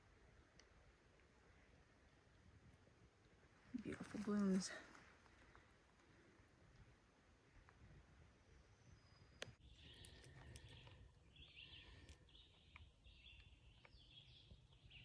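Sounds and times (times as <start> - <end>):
small bird chirping: 8.6 - 15.0
click: 9.4 - 11.0.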